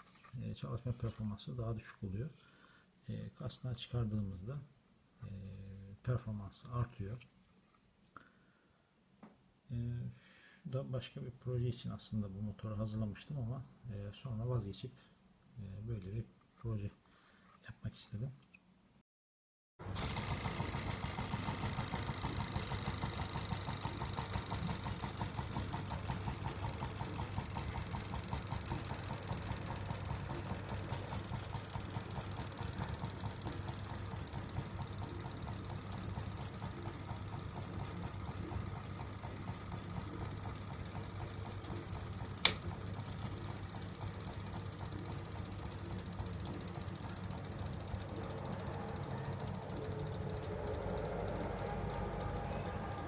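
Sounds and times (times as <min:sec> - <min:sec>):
stirling engine running: 0:19.9 - 0:36.8, 0:45.8 - 0:53.0
sharp click: 0:42.4 - 0:42.7.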